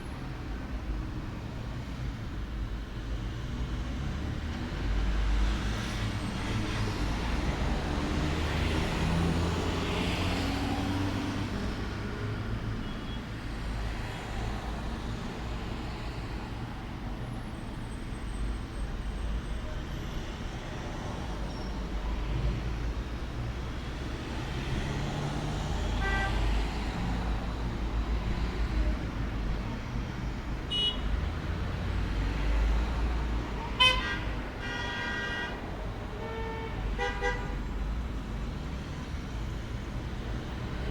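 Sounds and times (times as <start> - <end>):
road traffic rumble: 0.0 - 40.9
car horn toots: 30.7 - 31.0, 33.8 - 35.6.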